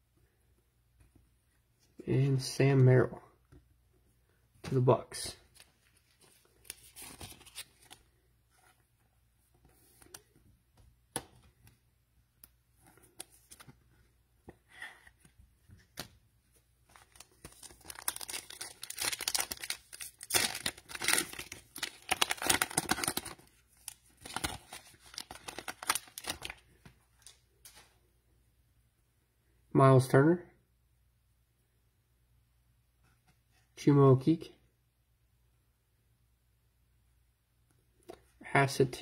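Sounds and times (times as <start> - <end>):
cellophane wrapper crinkling: 6.3 - 8.0, 16.9 - 27.8.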